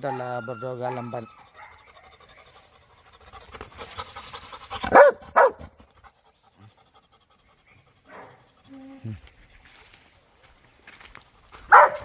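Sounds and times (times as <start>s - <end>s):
dog panting: 1.5s - 9.3s
dog barking: 4.9s - 5.6s, 11.7s - 12.0s.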